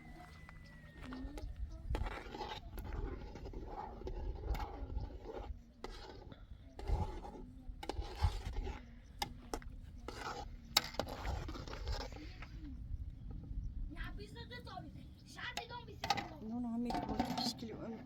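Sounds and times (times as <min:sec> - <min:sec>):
scraping and rubbing strokes: 0:00.0 - 0:12.8.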